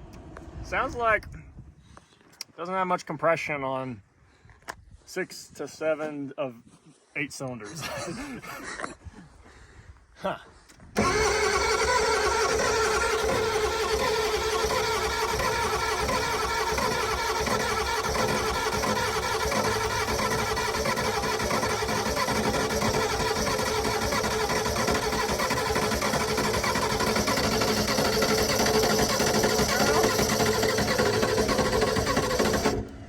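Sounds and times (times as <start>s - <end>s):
diesel engine cranking on starter: 11.0s - 33.0s.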